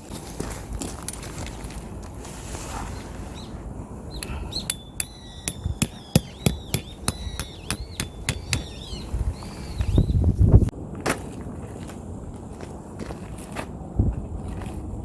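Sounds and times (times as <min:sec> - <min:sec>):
hammer blows: 0:04.7 - 0:08.8.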